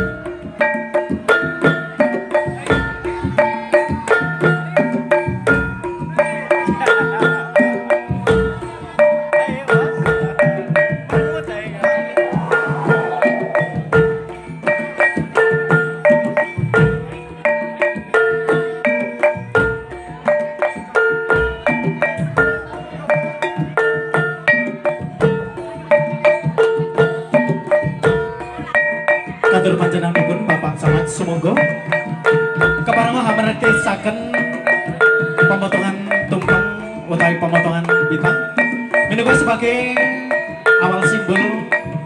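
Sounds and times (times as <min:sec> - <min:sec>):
low drum beats: 0:00.0 - 0:42.0
pitched percussion rhythm: 0:00.0 - 0:42.0.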